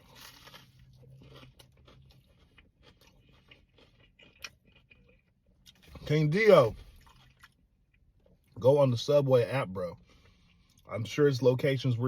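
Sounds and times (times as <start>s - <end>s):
chewing and biting sandwich: 0.0s - 8.6s.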